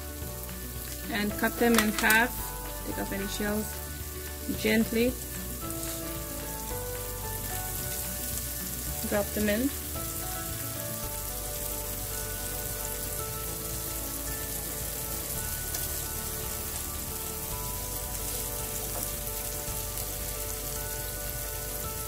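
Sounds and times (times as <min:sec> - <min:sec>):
eggs sizzling in oil: 0:00.0 - 0:22.0.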